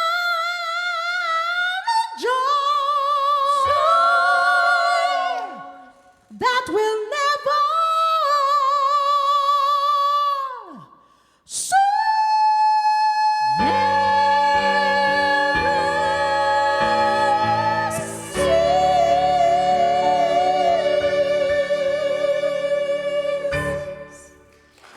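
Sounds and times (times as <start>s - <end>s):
church singers: 0.0s - 10.8s, 11.5s - 24.9s
keyboard accompaniment: 13.6s - 24.9s.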